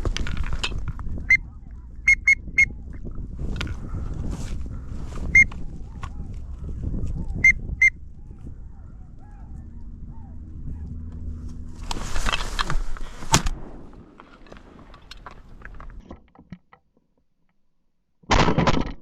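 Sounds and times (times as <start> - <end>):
rustling and crackling brush: 0.0 - 1.9, 2.8 - 7.4, 8.3 - 16.1
sharp crack: 11.8 - 16.0.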